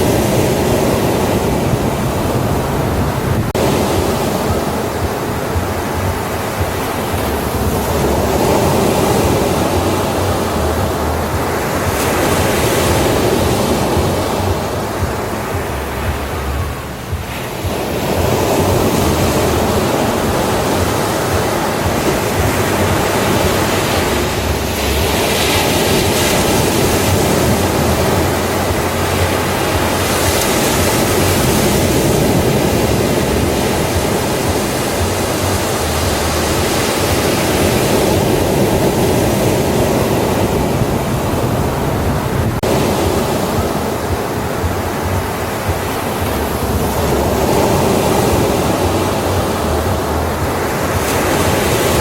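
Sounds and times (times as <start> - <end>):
hiss of wave wash: 0.0 - 52.0
ocean surf roaring: 0.0 - 52.0.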